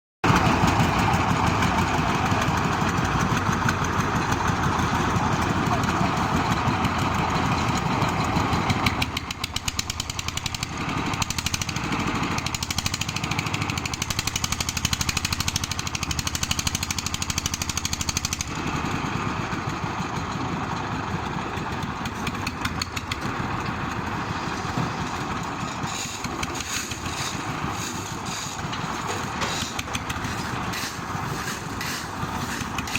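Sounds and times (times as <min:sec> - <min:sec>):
engine running: 0:00.2 - 0:32.9.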